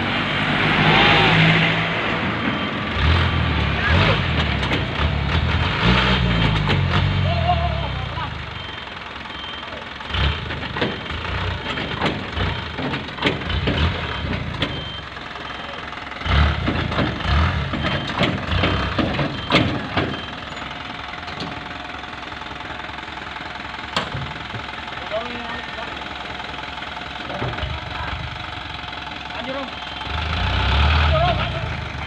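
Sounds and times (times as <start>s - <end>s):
truck engine running: 0.0s - 32.0s
irregular thumps and clatters: 4.4s - 5.6s, 6.3s - 7.1s, 10.4s - 15.0s, 16.5s - 21.7s.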